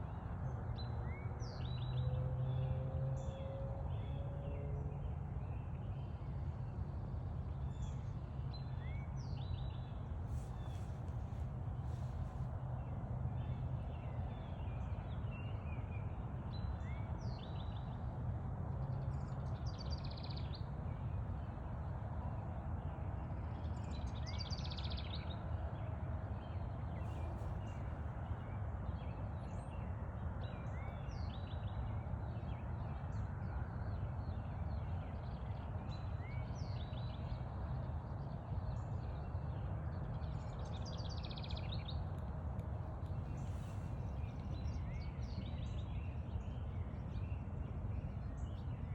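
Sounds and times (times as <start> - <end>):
songbirds singing: 4.9 - 18.0, 23.4 - 48.9.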